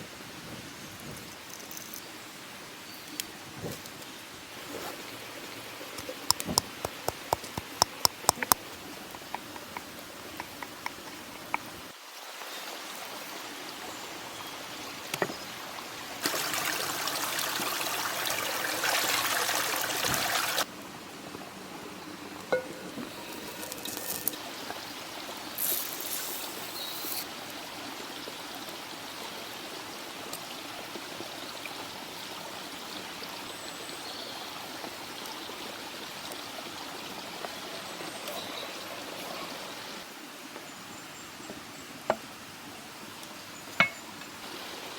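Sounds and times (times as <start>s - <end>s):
watery background: 0.0s - 44.9s
liquid pouring and trickling: 5.5s - 12.0s, 16.2s - 20.7s, 22.5s - 27.3s.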